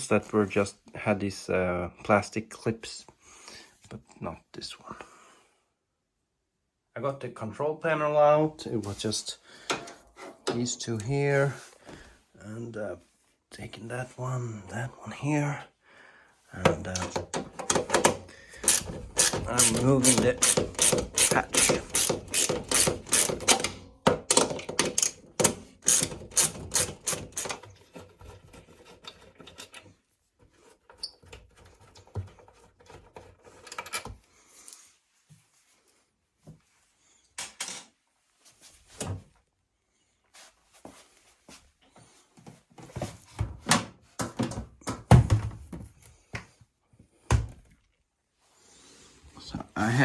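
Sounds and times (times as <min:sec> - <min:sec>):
knocks of parts being handled: 0:16.6 - 0:28.7
ratchet tool clicking: 0:18.6 - 0:23.7, 0:25.8 - 0:27.6.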